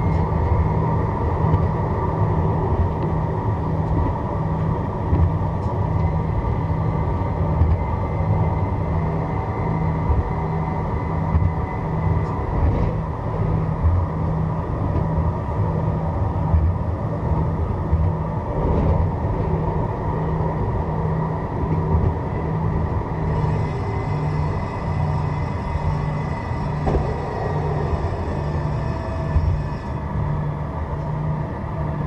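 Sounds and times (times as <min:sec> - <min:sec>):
pulsing low hum: 0:00.0 - 0:32.0
tram rolling noise: 0:00.0 - 0:32.0
thin high whine: 0:20.1 - 0:32.0.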